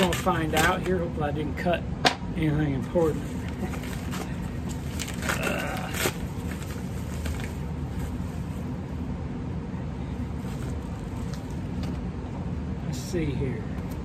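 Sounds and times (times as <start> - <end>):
cardboard package rustling: 0.0 - 1.0, 3.0 - 8.6
low background rumble: 0.0 - 14.0.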